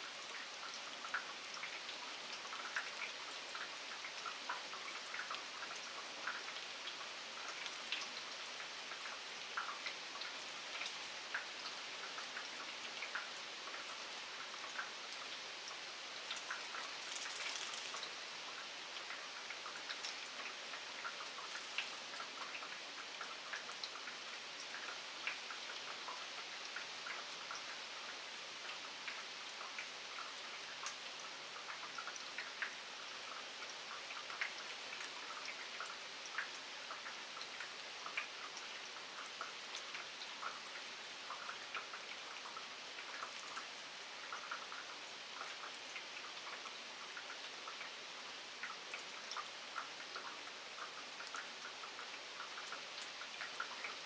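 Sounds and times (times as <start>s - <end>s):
steady rain hiss: 0.0s - 54.0s
raindrops tapping: 16.2s - 18.6s.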